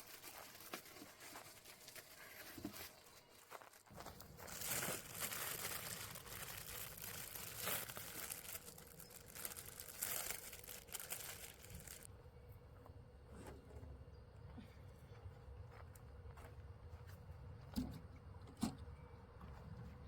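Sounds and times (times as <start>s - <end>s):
rustling crinkling noise: 0.0s - 12.1s.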